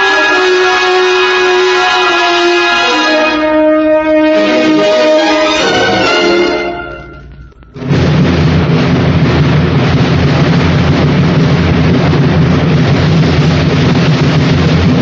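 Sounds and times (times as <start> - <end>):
music: 0.0 - 15.0
low rumble with hiss: 7.0 - 15.0.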